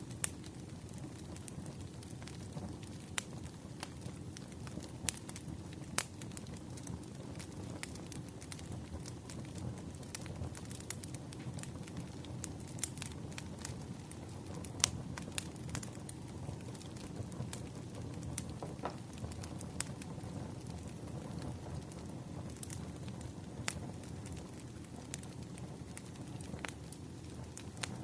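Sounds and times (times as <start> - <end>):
low rumble of fire: 0.0 - 28.0
wood fire crackles and pops: 0.0 - 28.0.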